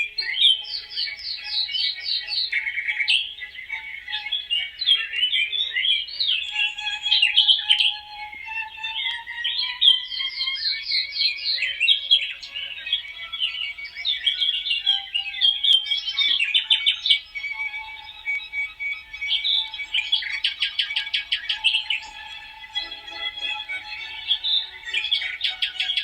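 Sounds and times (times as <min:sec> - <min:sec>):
birds singing chorus: 0:00.0 - 0:26.0.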